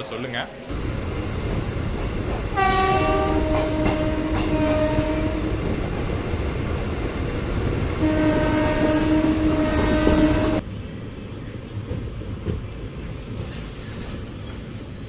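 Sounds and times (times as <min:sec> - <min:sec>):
moving train running noise: 0:00.7 - 0:15.0
train horn blasts: 0:02.6 - 0:05.8, 0:08.0 - 0:10.6.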